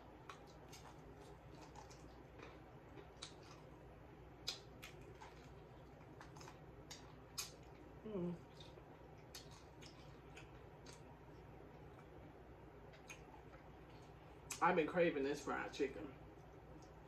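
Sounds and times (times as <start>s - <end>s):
chewing crispy chicken crunches: 0.0s - 12.2s
low steady hum: 0.0s - 17.0s.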